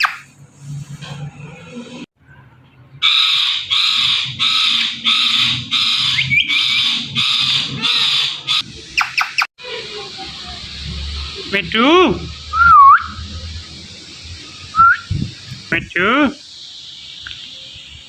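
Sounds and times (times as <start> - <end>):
parrot squawking harshly: 3.0 - 9.4.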